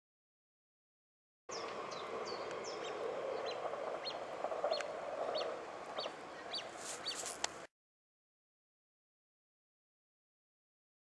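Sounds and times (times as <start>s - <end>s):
murmur of bird calls: 1.5s - 7.6s.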